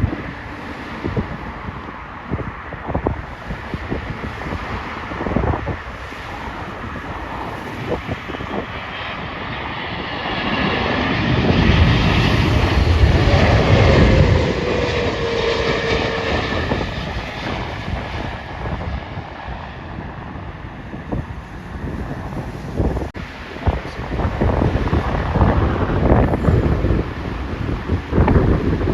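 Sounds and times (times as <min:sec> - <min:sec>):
jet airliner passing: 0:00.0 - 0:28.9
jet engine whine falling in pitch: 0:00.0 - 0:28.9.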